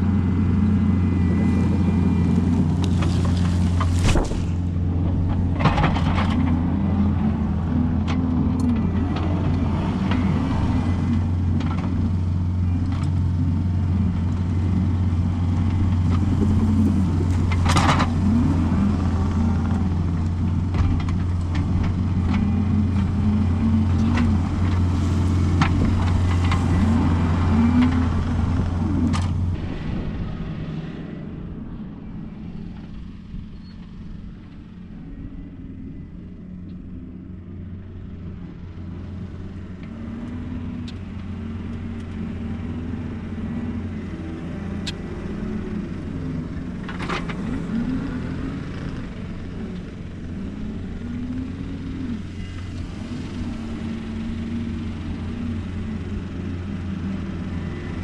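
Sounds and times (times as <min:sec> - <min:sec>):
diesel engine working under load: 0:00.0 - 0:58.0.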